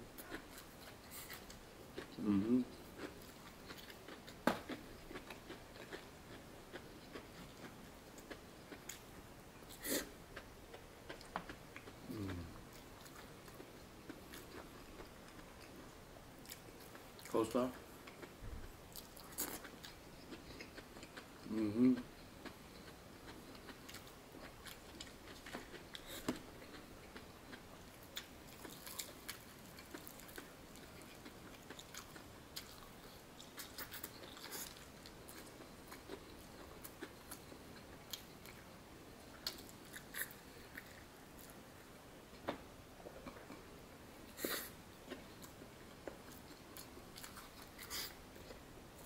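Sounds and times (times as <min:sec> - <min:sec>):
chewing with short crunches: 0:00.2 - 0:09.1, 0:18.0 - 0:41.6, 0:44.3 - 0:48.6.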